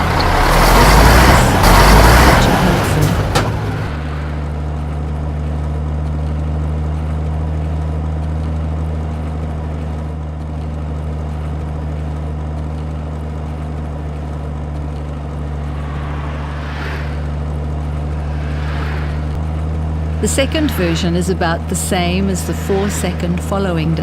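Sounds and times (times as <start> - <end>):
heavy truck engine drone: 0.0 - 24.0
brief whooshes: 3.2 - 5.3, 15.1 - 24.0.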